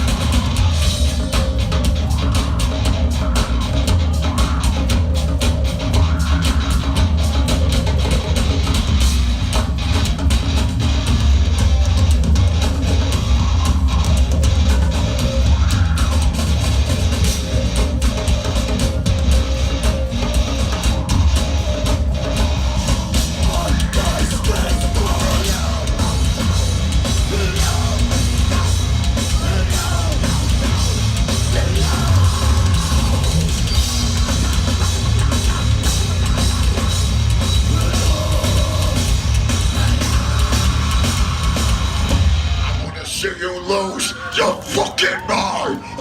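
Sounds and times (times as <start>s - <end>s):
distorted guitars and bass: 0.0s - 46.0s
driving drum kit: 0.0s - 46.0s
person singing: 22.8s - 33.6s, 37.6s - 41.8s.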